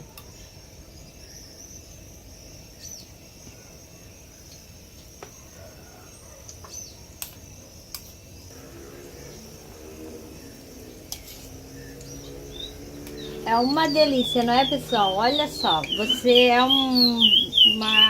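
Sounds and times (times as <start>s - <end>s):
birds chirping: 0.0s - 18.0s
high insect trill: 0.0s - 18.0s
chickens clucking: 11.3s - 18.0s.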